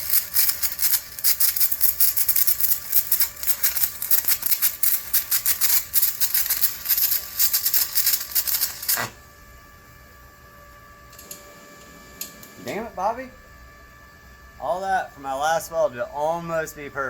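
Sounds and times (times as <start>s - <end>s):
welding arc crackling: 0.0s - 9.2s
faint steady hum: 0.0s - 17.0s.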